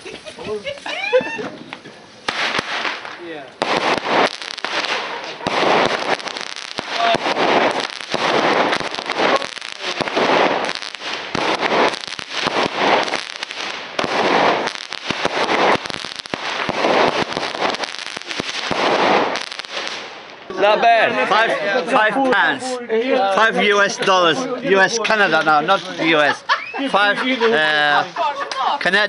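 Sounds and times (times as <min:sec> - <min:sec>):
fireworks crackling: 0:00.0 - 0:20.8, 0:23.7 - 0:29.0.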